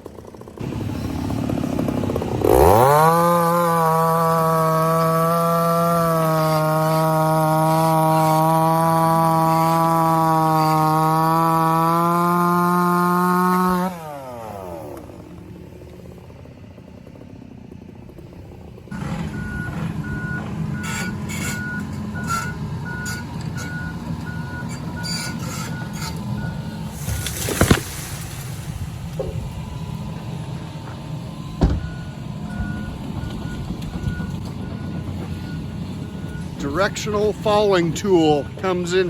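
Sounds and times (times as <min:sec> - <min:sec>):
chainsaw running: 0:00.0 - 0:34.1
excavator engine: 0:00.0 - 0:39.0
sharp thump: 0:27.0 - 0:28.4.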